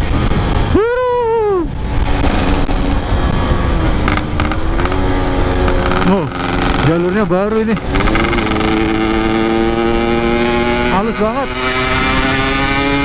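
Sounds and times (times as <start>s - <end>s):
wind on microphone: 0.0s - 7.1s
two-stroke motorcycle engine revving: 1.8s - 13.0s.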